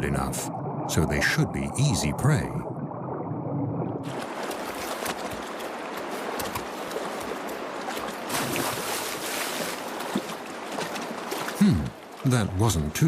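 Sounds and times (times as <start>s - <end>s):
splashing in water: 4.0s - 12.3s
stream water rushing: 4.0s - 13.0s.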